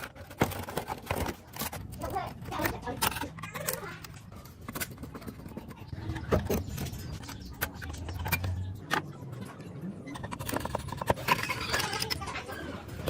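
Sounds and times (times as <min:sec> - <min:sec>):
plastic and metal parts clicking: 0:00.0 - 0:09.2, 0:10.1 - 0:13.0.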